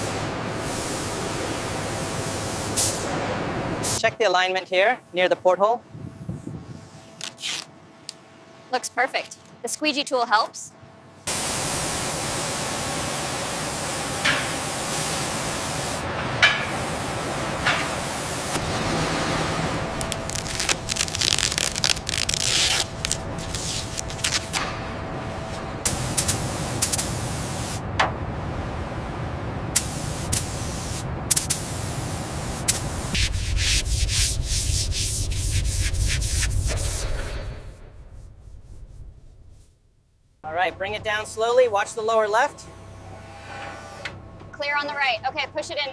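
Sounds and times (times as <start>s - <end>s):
steady spraying hiss: 0.0s - 3.2s, 11.3s - 18.6s, 19.9s - 24.6s, 25.4s - 27.8s, 29.8s - 37.4s
abrasive rubbing: 19.9s - 24.6s
low rumble with quick strokes: 32.2s - 40.4s.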